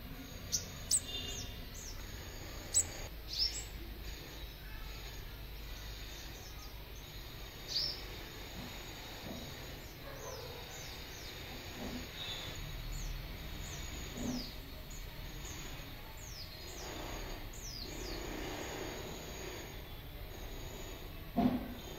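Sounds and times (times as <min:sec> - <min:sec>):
small bird chirping: 0:00.0 - 0:21.9.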